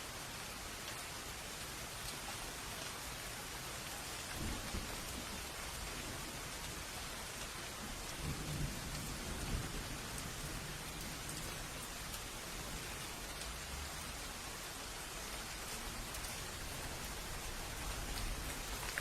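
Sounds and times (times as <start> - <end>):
steady rain falling: 0.0 - 19.0
distant thunder rumbling: 4.4 - 6.3, 7.8 - 14.2.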